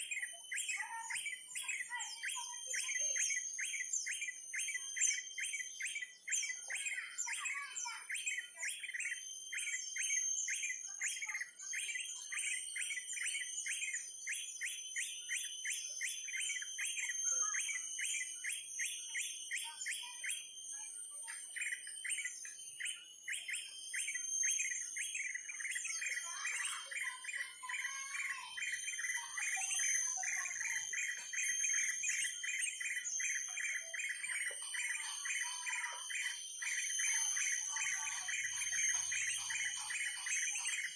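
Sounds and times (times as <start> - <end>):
bird chirping: 21.5 - 40.9.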